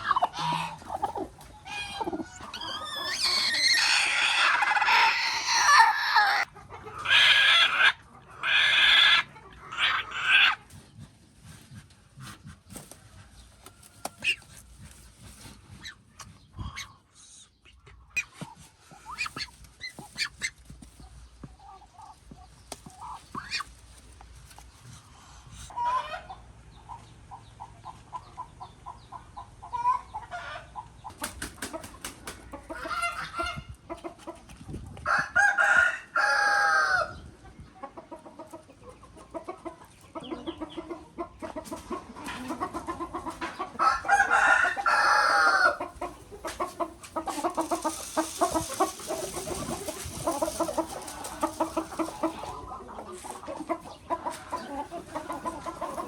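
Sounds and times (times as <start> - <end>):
chickens clucking: 0.0 - 56.0
rooster crowing: 35.1 - 37.1, 43.8 - 45.8.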